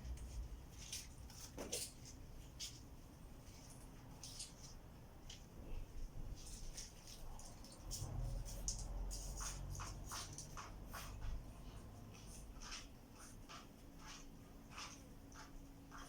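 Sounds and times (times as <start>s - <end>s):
light scratching scrapes: 6.3s - 16.0s.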